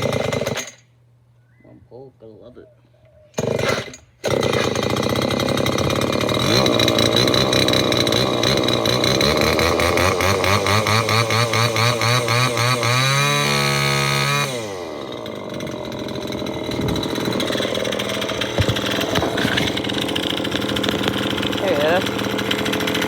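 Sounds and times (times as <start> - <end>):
string trimmer engine revving: 0.0 - 0.8, 3.4 - 23.0
sharp knocks: 18.4 - 19.8.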